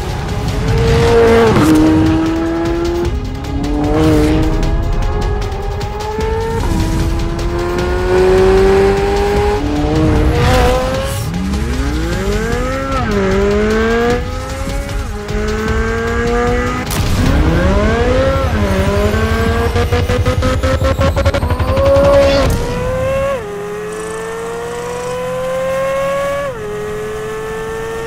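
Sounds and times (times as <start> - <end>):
car engine revving through gears: 0.0 - 28.0.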